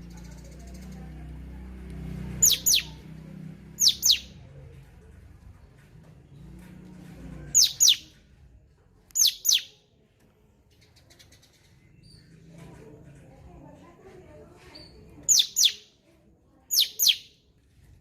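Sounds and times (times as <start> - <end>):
songbird whistling calls: 2.4 - 3.0, 3.8 - 4.3, 7.6 - 8.1, 9.2 - 9.7, 15.3 - 15.9, 16.7 - 17.3.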